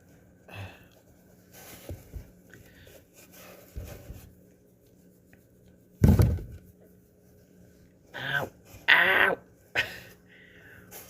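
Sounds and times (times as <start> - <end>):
soft knocks and rustles: 1.5 - 4.5
loud thump: 6.0 - 6.6.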